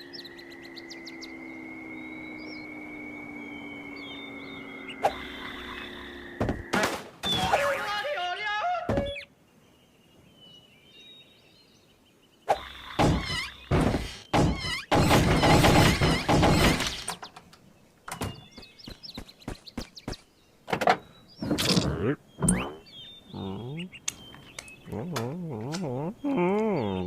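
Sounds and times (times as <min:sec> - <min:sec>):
cartoon thunks and bursts: 0:13.0 - 0:17.0.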